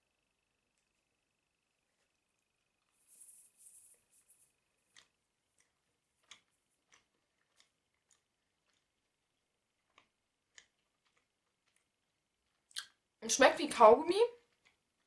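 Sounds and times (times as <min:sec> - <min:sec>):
mouth clicks chewing candy: 0:04.8 - 0:13.1, 0:14.4 - 0:15.0.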